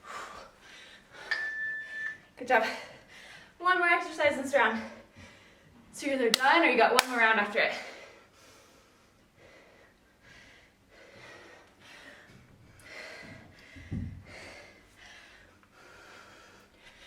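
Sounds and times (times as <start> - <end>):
heavy breathing: 7.7 - 17.0.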